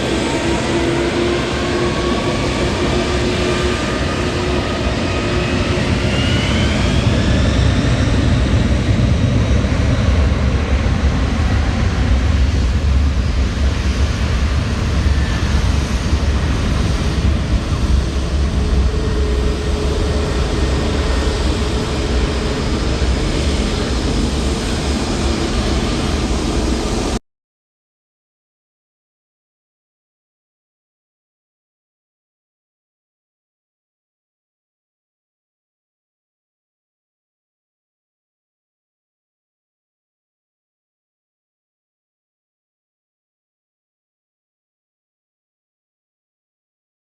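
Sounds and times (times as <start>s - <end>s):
jet engine whine: 0.0s - 27.2s
jet engines deep rumble: 0.0s - 27.2s.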